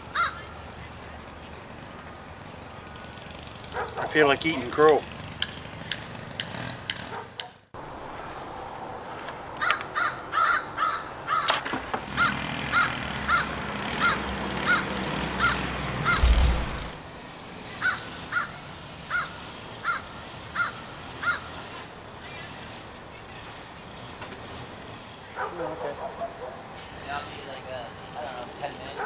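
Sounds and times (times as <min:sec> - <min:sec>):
crow cawing: 0:00.1 - 0:00.5, 0:09.6 - 0:11.5, 0:12.2 - 0:16.4, 0:17.8 - 0:21.6
low rumble: 0:16.1 - 0:17.0
thump: 0:16.2 - 0:16.9.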